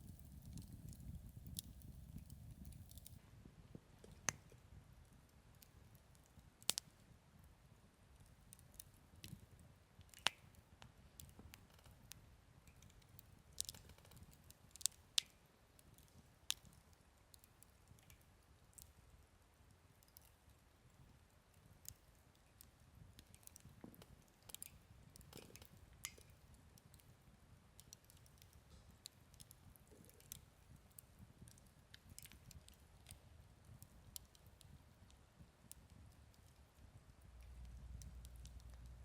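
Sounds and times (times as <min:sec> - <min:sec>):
campfire popping and snapping: 0:00.0 - 0:03.2, 0:05.6 - 0:07.0, 0:08.1 - 0:19.0, 0:21.5 - 0:27.2, 0:27.8 - 0:39.0
faint low rumble: 0:36.6 - 0:39.0.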